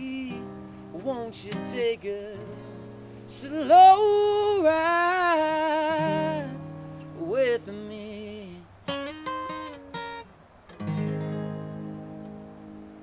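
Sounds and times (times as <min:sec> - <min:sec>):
person singing: 0:00.0 - 0:06.6
acoustic guitar: 0:00.0 - 0:13.0.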